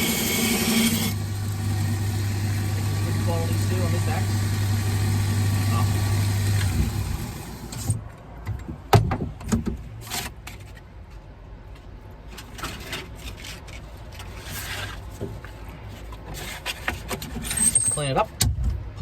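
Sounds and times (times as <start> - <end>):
grinder motor humming: 0.0 - 7.9.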